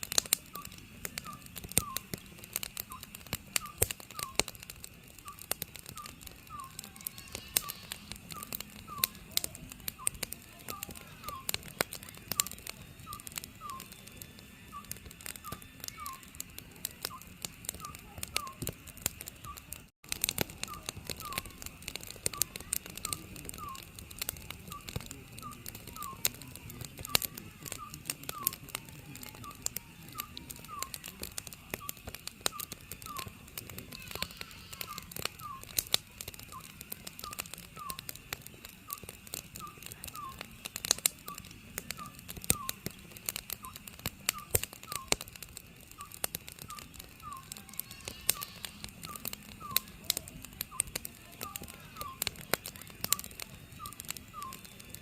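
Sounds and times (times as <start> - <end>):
wood fire crackling: 0.0 - 55.0
owl calling: 0.4 - 4.5, 5.2 - 14.0, 14.7 - 16.5, 17.1 - 18.7, 20.6 - 28.8, 29.4 - 35.8, 36.5 - 38.0, 39.6 - 40.5, 41.3 - 43.0, 43.6 - 45.3, 46.0 - 50.0, 50.7 - 52.4, 53.1 - 54.6.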